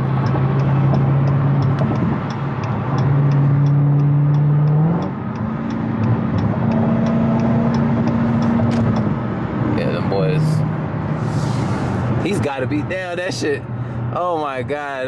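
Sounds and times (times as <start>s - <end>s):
light regular ticking: 0.0s - 9.6s
car engine droning: 0.0s - 15.0s
road noise: 0.0s - 15.0s.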